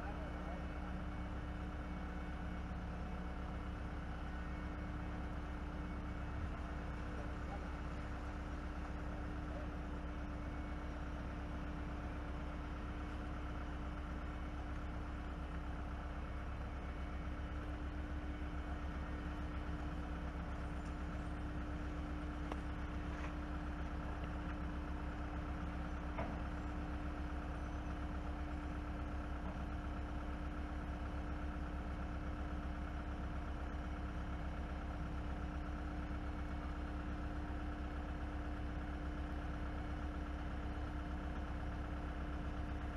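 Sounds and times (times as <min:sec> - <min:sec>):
diesel engines droning: 0:00.0 - 0:31.9.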